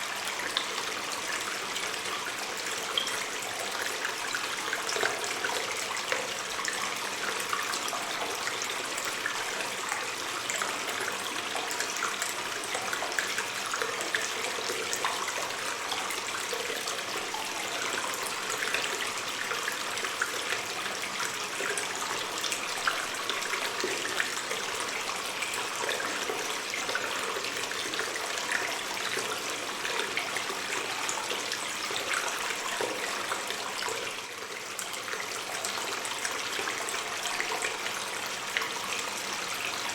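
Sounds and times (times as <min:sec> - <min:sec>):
water stream running in a cave: 0:00.0 - 0:39.9.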